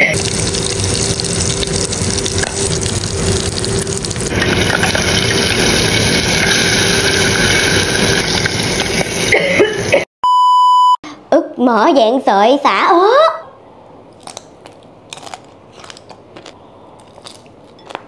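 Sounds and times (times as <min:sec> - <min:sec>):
fish sizzling in oil: 0:00.1 - 0:09.3.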